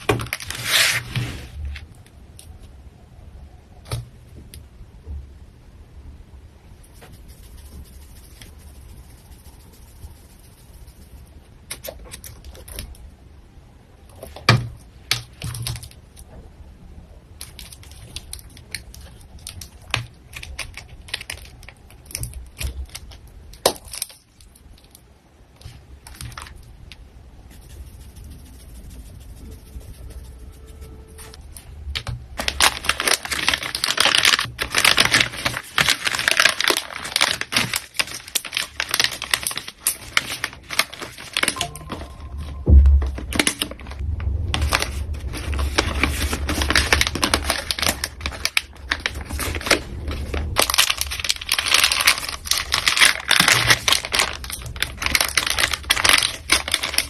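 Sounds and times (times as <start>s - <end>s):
packing material crinkling: 0.0s - 1.9s, 17.4s - 25.0s, 25.6s - 26.7s, 29.4s - 57.0s.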